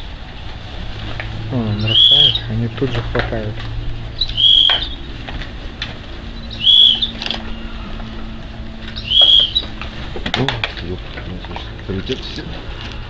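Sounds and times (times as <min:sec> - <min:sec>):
wings flapping: 0:00.0 - 0:13.0
high whistled bird call: 0:01.5 - 0:02.6, 0:04.1 - 0:05.3, 0:06.2 - 0:09.8.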